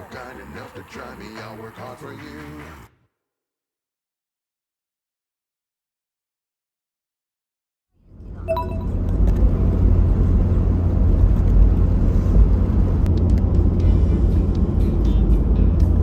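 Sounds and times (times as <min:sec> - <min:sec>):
vehicle engine low rumble: 0:08.0 - 0:16.0.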